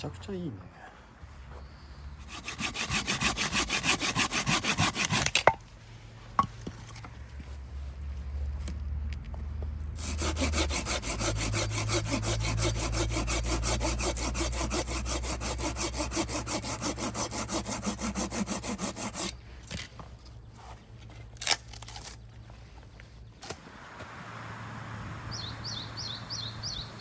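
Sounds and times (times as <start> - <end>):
hand saw cutting wood: 2.2 - 5.5, 10.0 - 19.4.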